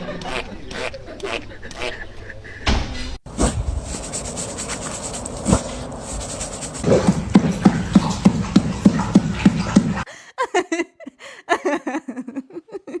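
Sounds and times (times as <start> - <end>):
knocks: 6.8 - 10.0.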